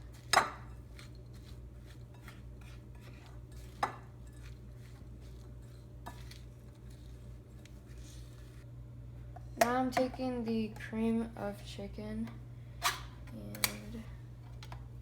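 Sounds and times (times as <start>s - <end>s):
steady low hum: 0.0s - 15.0s
utensil clinking against bowl: 0.2s - 7.7s.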